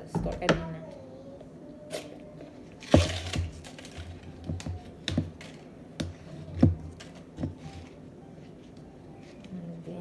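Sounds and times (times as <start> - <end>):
plastic tub and scoop tapping: 2.9 - 7.9.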